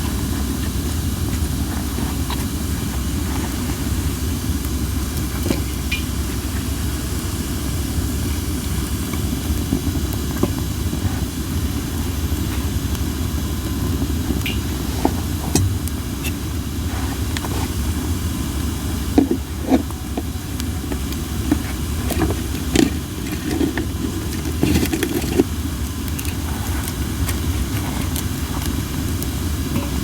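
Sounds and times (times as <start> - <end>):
campfire crackling and popping: 0.0 - 30.0
logs hissing and sizzling: 0.0 - 30.0.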